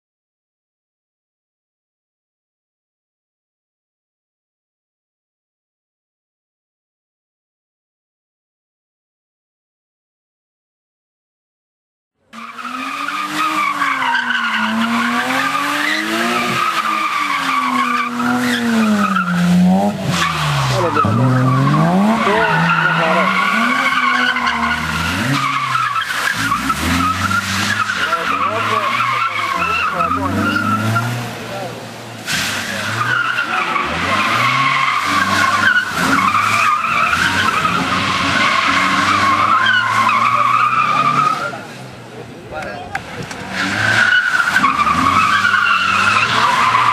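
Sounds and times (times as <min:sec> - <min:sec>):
tyres squealing: 0:12.4 - 0:31.3, 0:32.2 - 0:41.6, 0:43.4 - 0:46.9
car engine revving: 0:12.4 - 0:46.9.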